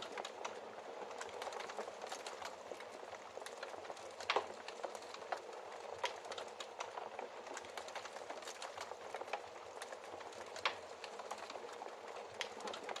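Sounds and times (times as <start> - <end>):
fire crackling and popping: 0.0 - 13.0.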